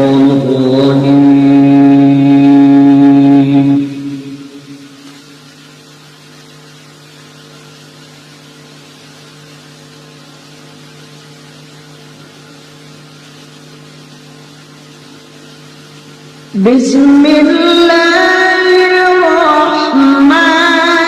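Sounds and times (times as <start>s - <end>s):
low hum: 0.0s - 17.6s
hiss: 3.8s - 16.7s.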